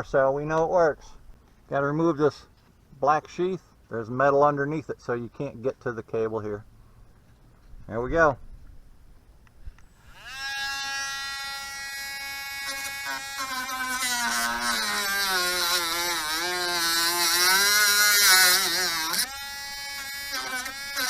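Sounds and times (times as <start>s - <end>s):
rotary tool whine: 9.7s - 21.0s.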